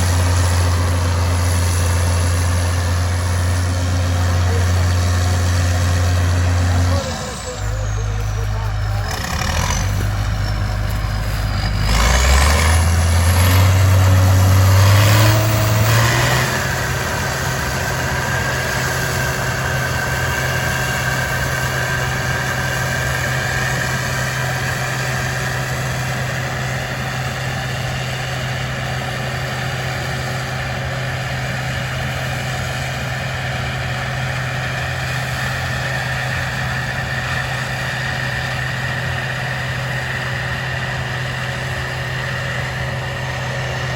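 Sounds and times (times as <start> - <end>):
engine revving with high whine: 0.0 - 43.9.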